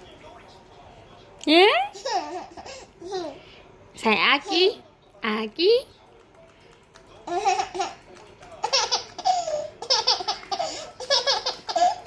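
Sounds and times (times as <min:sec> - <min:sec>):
baby laughing: 0:01.9 - 0:03.4, 0:07.2 - 0:08.0, 0:08.6 - 0:12.0.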